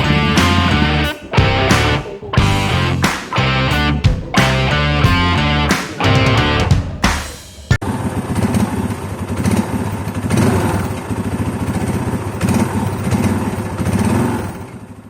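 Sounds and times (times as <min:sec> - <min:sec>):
motorcycle engine idling and blipping: 0:06.7 - 0:15.0.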